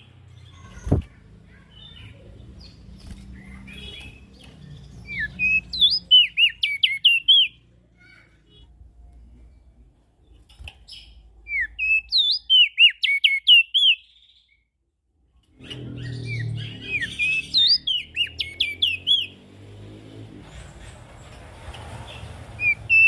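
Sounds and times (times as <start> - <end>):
bird chirping: 0.0 - 19.8, 22.0 - 23.0.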